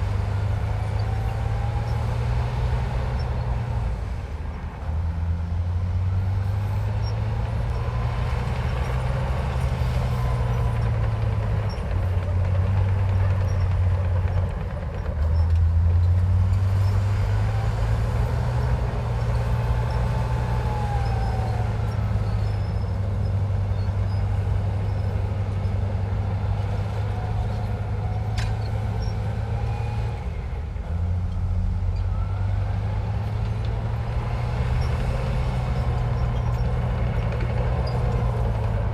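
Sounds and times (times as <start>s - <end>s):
bulldozer diesel engine under load: 0.0s - 38.9s
faint high squeals: 16.8s - 25.8s.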